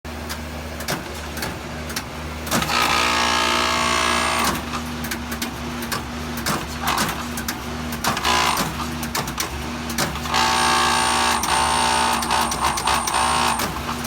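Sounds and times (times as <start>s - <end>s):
loud buzz: 10.3s - 13.8s.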